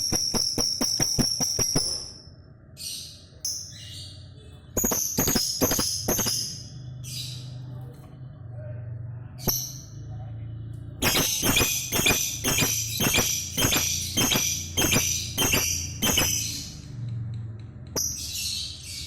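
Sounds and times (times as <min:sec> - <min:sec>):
sharp bird clicks: 0:00.0 - 0:02.2, 0:04.8 - 0:06.6, 0:11.0 - 0:18.4
lovebird chattering: 0:04.8 - 0:07.4, 0:11.0 - 0:16.8.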